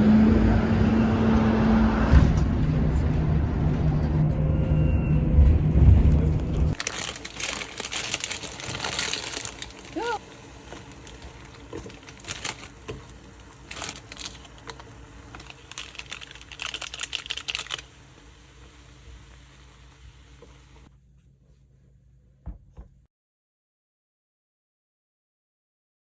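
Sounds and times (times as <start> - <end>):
crinkly rustling: 6.7 - 18.0.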